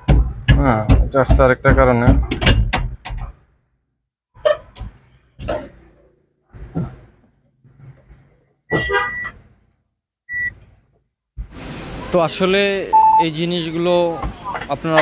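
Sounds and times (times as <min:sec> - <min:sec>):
high electronic beeps: 0:12.9 - 0:13.4.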